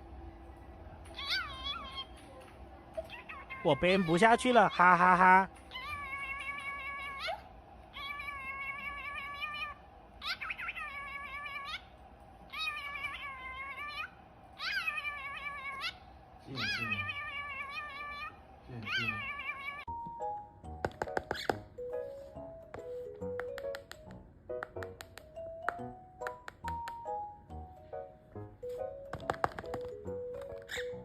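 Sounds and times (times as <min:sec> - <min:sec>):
meow-like animal calls: 0:01.1 - 0:02.2, 0:05.7 - 0:11.9, 0:12.5 - 0:20.0, 0:30.6 - 0:31.0.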